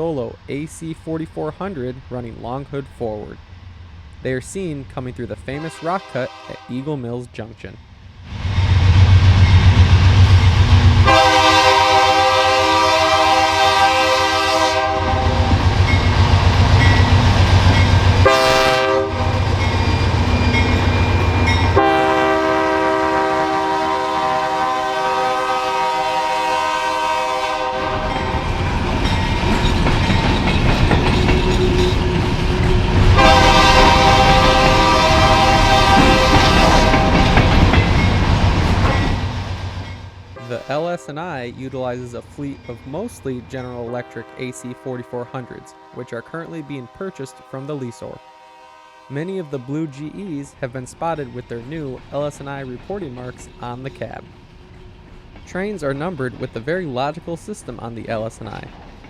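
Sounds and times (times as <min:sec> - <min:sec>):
train passing: 0:00.0 - 0:59.0
locomotive horn blasts: 0:05.5 - 0:06.8, 0:11.0 - 0:15.6, 0:18.2 - 0:19.4, 0:21.7 - 0:28.4, 0:33.0 - 0:37.5, 0:40.4 - 0:41.2, 0:43.9 - 0:50.3
locomotive engine rumble: 0:07.8 - 0:44.1.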